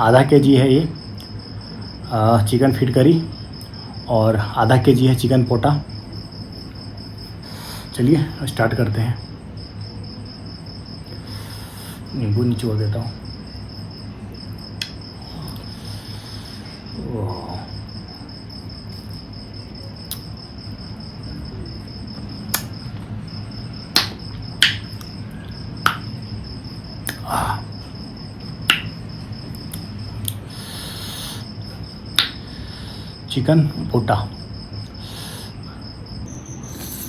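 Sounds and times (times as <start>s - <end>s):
cricket trilling: 0.0s - 37.0s
eating mouth smacks and clicks: 20.1s - 20.3s, 22.5s - 22.8s, 25.8s - 26.2s, 27.0s - 27.3s, 29.6s - 30.4s, 32.2s - 32.4s.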